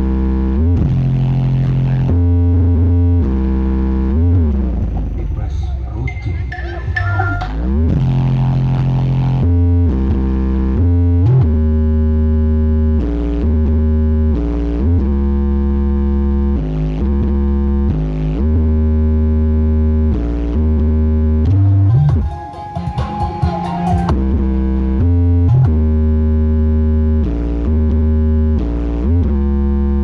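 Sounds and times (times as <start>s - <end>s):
loud synthesizer music: 0.0s - 15.2s, 20.1s - 28.0s
heavy sliding bass notes: 0.0s - 30.0s.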